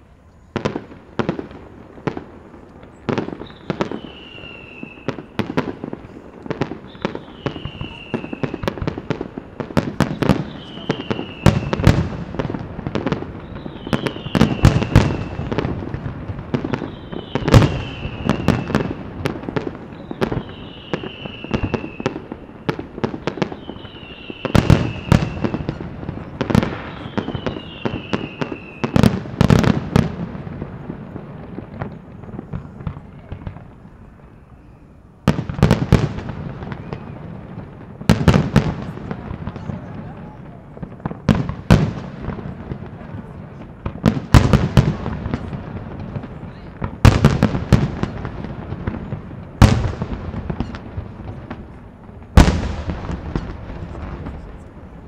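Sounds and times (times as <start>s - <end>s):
fireworks bangs and crackle: 0.0s - 55.0s
falling firework whistle: 2.1s - 30.1s, 31.8s - 42.0s, 46.3s - 51.6s.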